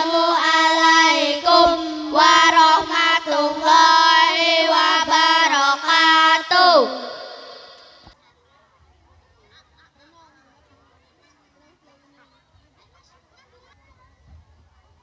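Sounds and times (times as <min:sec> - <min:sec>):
child singing: 0:00.0 - 0:07.8
steady low held tone: 0:00.0 - 0:08.1.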